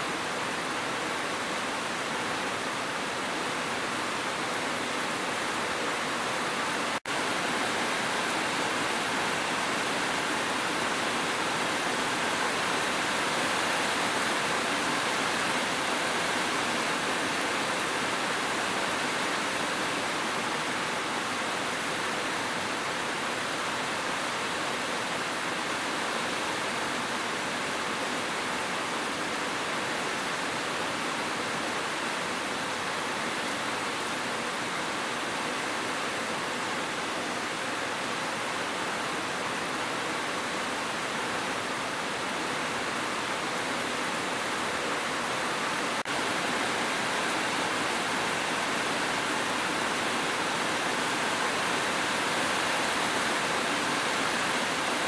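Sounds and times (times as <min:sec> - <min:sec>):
hiss of falling water: 0:00.0 - 0:55.0.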